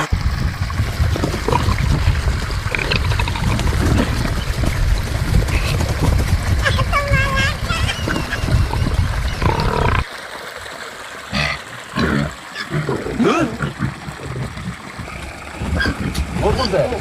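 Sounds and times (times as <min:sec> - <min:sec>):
loud low rumble: 0:00.0 - 0:09.6.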